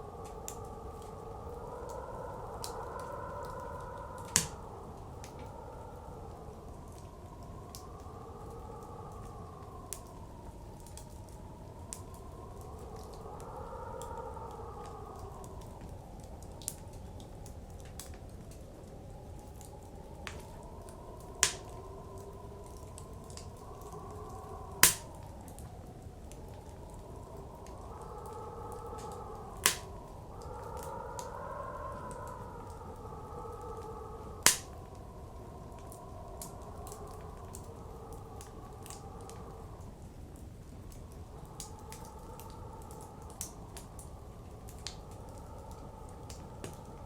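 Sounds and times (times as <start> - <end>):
blizzard wind howling: 0.0 - 47.0
wood fire crackling: 0.0 - 47.0
sharp pop of fire: 4.3 - 4.6, 21.4 - 21.6, 24.8 - 25.1, 29.6 - 29.9, 34.5 - 34.7.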